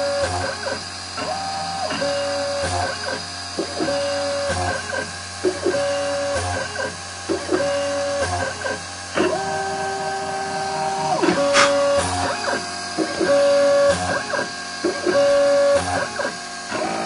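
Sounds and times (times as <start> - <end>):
stepper motors whining: 0.0 - 17.0
steady hum: 1.5 - 17.0.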